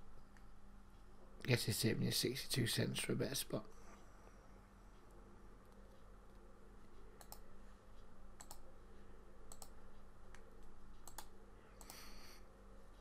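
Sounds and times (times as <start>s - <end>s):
low electrical hum: 0.0s - 13.0s
faint computer mouse clicks: 7.2s - 7.5s, 8.4s - 8.6s, 9.5s - 12.1s.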